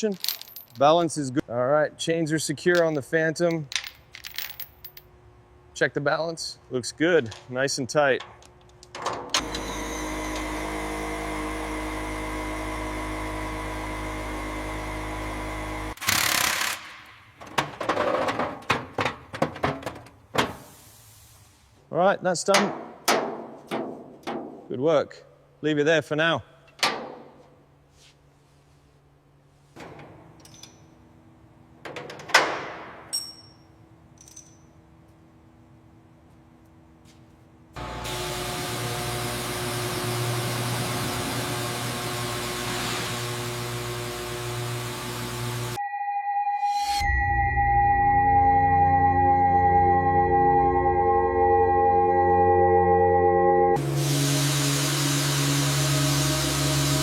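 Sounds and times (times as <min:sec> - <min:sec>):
metal clanks and clinks: 0:00.0 - 0:00.9, 0:33.1 - 0:34.8
motor humming: 0:09.4 - 0:16.7
loud hiss: 0:53.8 - 0:57.0.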